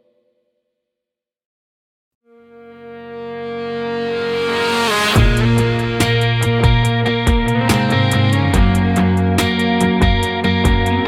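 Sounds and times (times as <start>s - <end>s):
held guitar chord: 2.7s - 11.0s
country rock band playing: 3.7s - 11.0s.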